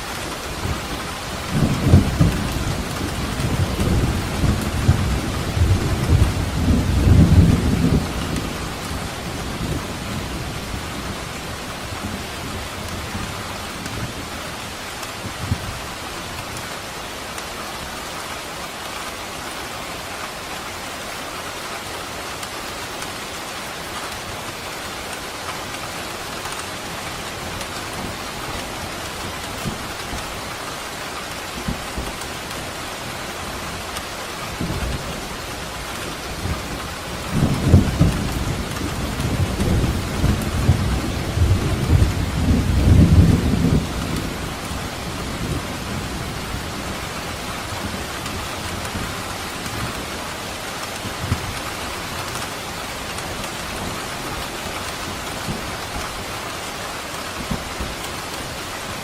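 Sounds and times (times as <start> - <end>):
steady rain falling: 0.0 - 59.0
low roll of thunder: 1.4 - 11.4, 36.4 - 50.0.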